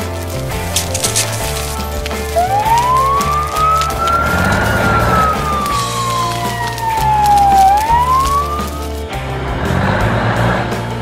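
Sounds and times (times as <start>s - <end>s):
background music with bass line: 0.0s - 11.0s
cartoon fire engine siren: 2.4s - 9.0s.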